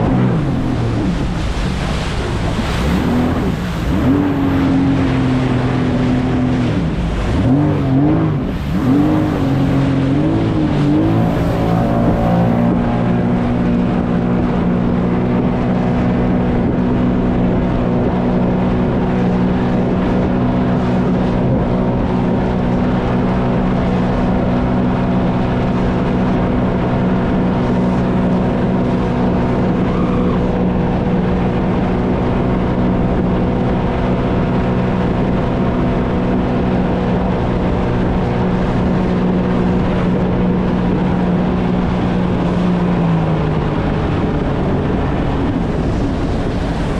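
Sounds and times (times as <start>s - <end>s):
constant rushing noise: 0.0s - 46.9s
jet ski engine running: 0.0s - 46.9s.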